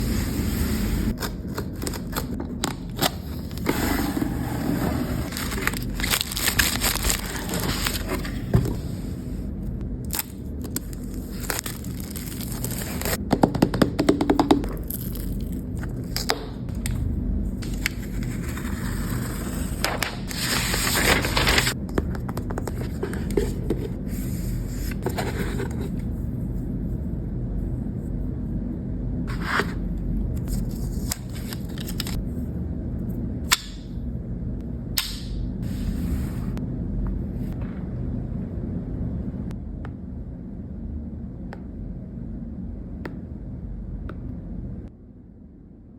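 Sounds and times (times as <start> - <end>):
cardboard and plastic packaging opened: 1.1 - 8.6, 10.1 - 13.2, 17.6 - 21.8, 30.4 - 32.2.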